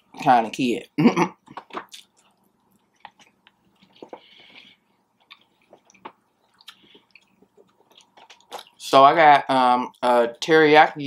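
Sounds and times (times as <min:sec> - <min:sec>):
person chewing food: 0:01.4 - 0:08.8.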